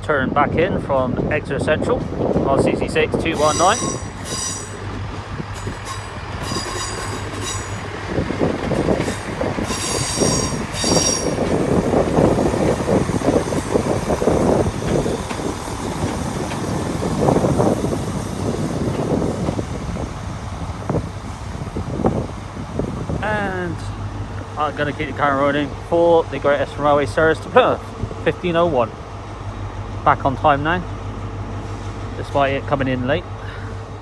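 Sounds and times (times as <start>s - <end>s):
train wheels squealing: 3.4s - 4.9s, 5.5s - 7.9s, 9.0s - 11.6s
train wheels clattering over joints: 3.4s - 20.2s.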